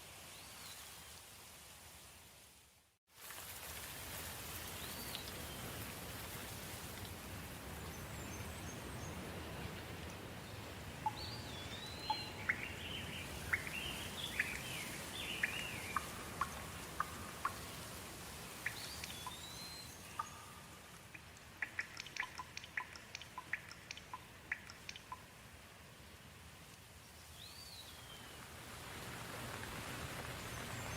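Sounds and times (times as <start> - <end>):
soft rain falling: 0.0 - 30.9
water drips: 3.2 - 8.1, 8.8 - 25.6
birds calling: 11.0 - 17.7, 18.6 - 25.2.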